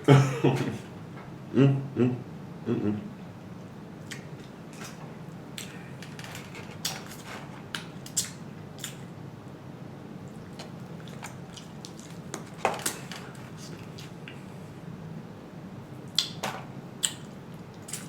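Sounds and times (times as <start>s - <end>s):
steady low hum: 0.0s - 18.0s
person chewing food: 10.2s - 14.6s
wet mouth clicks and smacks: 16.1s - 16.4s, 17.0s - 18.0s.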